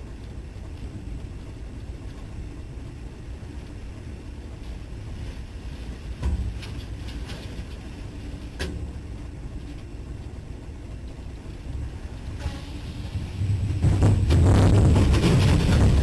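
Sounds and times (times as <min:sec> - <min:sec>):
vehicle rumble with crackling: 0:00.0 - 0:16.0.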